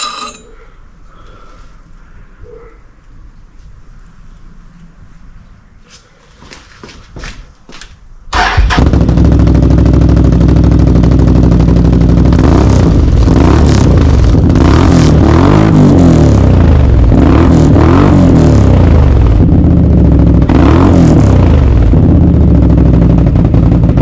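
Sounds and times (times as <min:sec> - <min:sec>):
engine starting and idling: 0:08.3 - 0:09.8.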